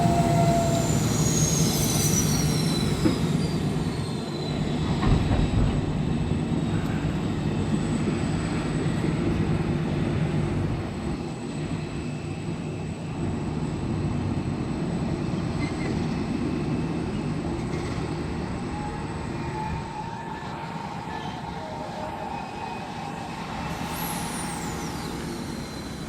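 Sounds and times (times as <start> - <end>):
wheel squeal: 0.0 - 5.2, 17.8 - 26.0
train rumbling on rails: 0.0 - 26.0.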